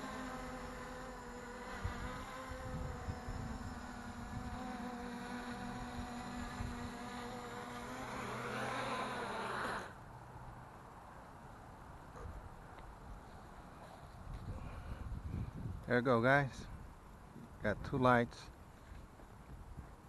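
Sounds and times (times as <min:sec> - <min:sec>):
quadcopter propellers buzzing: 0:00.0 - 0:10.0
rising whine: 0:00.0 - 0:10.0
wind gusting on microphone: 0:01.6 - 0:07.5, 0:14.2 - 0:15.9.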